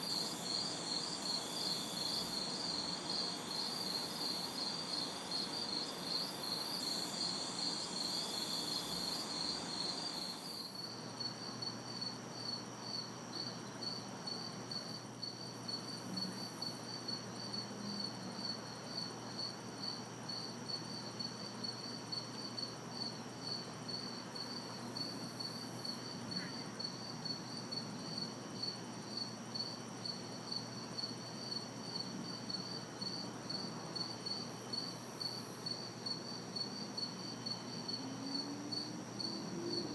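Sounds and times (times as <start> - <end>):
distant city traffic hiss: 0.0 - 11.9, 30.2 - 39.9
crickets chirping: 0.0 - 39.9
high insect buzz: 0.0 - 39.9.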